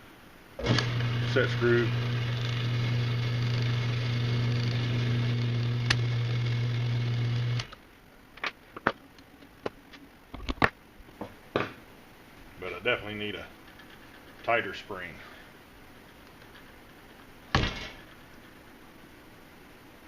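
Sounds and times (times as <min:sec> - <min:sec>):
electric motor humming: 0:00.6 - 0:07.8.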